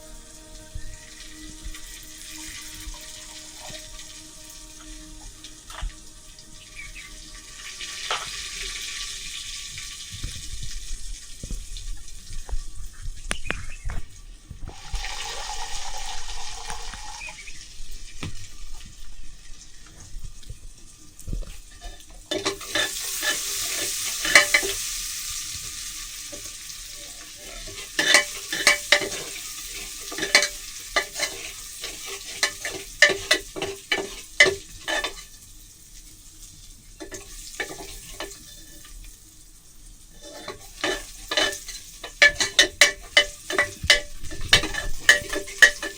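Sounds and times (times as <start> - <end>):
food sizzling in a pan: 0.0 - 45.9
spoon scraping and tapping pan: 8.0 - 8.7, 14.7 - 17.4, 21.4 - 25.0, 27.4 - 35.3, 37.0 - 39.0, 40.2 - 45.9.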